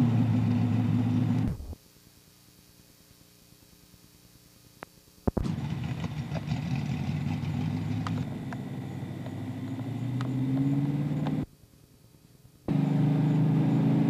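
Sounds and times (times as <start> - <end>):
car engine idling: 5.4 - 11.5.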